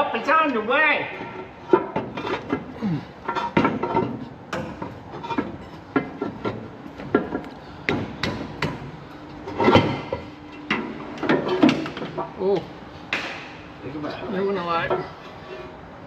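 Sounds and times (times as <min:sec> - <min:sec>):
metal tools knocking and clanking: 0:01.2 - 0:08.4.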